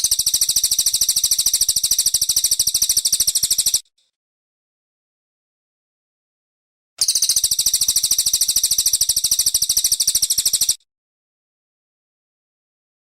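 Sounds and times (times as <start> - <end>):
bird singing high trill: 0.0 - 3.8, 7.0 - 10.8.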